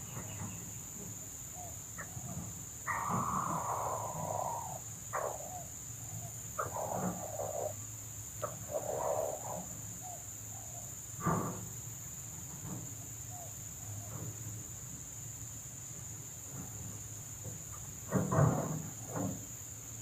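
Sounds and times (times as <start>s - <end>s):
insects droning: 0.0s - 20.0s
junglefowl calling: 1.6s - 10.9s.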